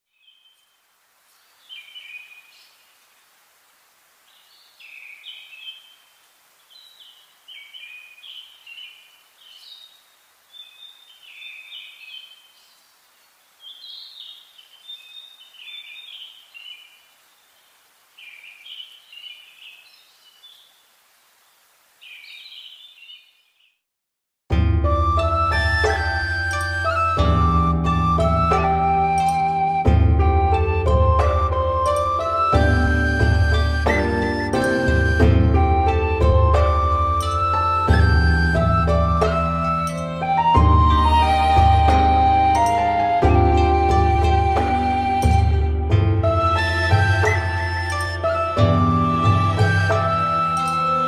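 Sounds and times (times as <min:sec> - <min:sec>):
faint outdoor hiss: 0:00.1 - 0:23.8, 0:24.5 - 0:51.0.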